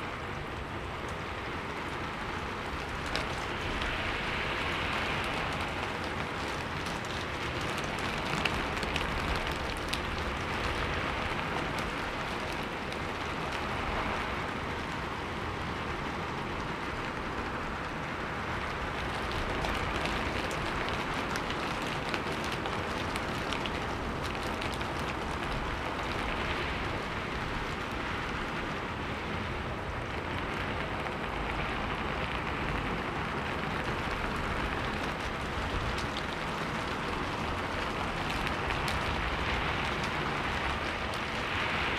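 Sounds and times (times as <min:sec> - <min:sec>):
steady rain patter: 0:00.0 - 0:41.9.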